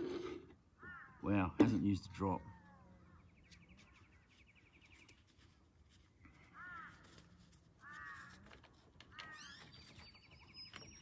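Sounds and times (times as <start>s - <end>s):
harsh bird calls: 0.7s - 5.6s, 6.2s - 11.0s
bird trilling: 0.8s - 5.1s, 9.1s - 11.0s.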